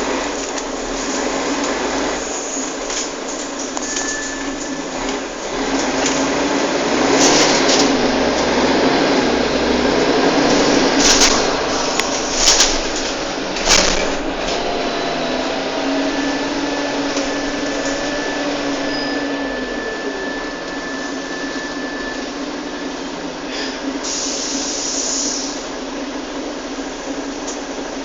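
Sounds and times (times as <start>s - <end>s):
bus running noise: 0.0s - 28.0s
drivetrain whine gliding in pitch: 3.6s - 23.4s
short air hiss: 24.0s - 25.6s.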